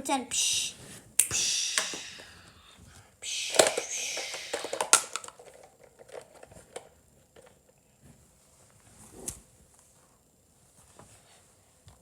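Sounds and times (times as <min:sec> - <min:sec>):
plastic toy pieces clicking: 0:03.4 - 0:06.5.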